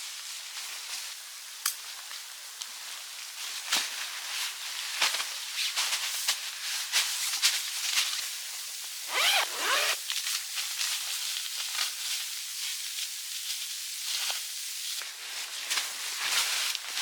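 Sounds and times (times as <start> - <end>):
rustling: 9.1 - 10.0.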